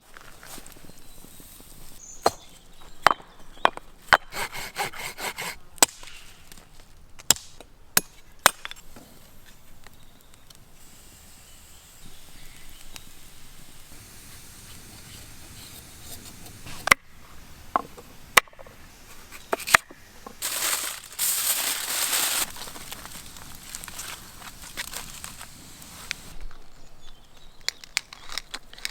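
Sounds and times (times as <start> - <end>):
axe chopping firewood: 2.2 - 6.3, 7.2 - 8.8
scraping hiss: 8.8 - 26.6.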